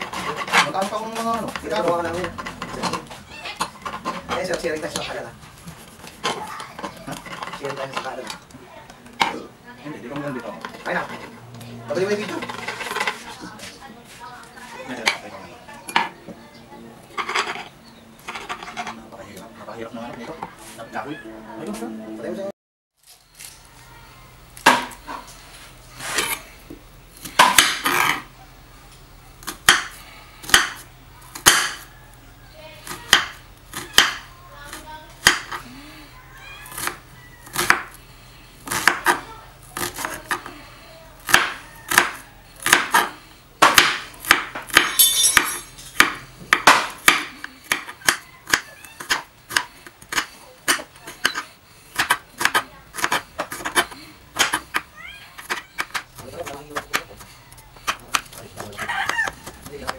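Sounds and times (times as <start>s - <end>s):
knife chopping on cutting board: 36.8s - 38.0s, 38.7s - 39.2s, 41.3s - 45.0s, 52.0s - 54.8s.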